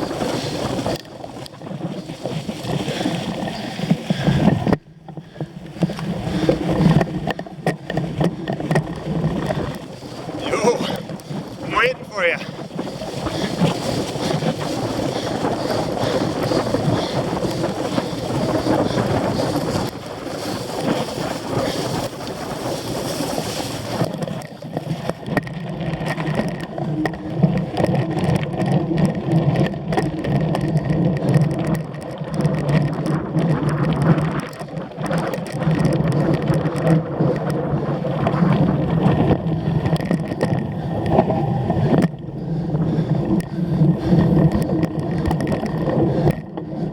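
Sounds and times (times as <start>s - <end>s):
bike rattling and knocking: 0.0s - 11.7s, 12.3s - 46.9s
bicycle tyre noise: 0.0s - 46.9s
wind rushing over microphone: 0.0s - 46.9s.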